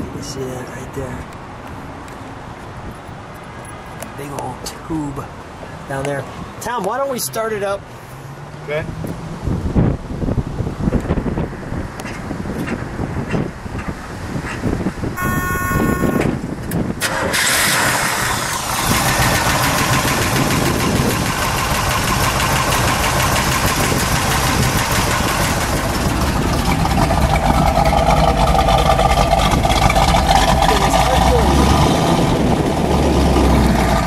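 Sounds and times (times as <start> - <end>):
short buzzing tone: 15.2 - 16.4
car engine starting and idling: 15.2 - 34.0.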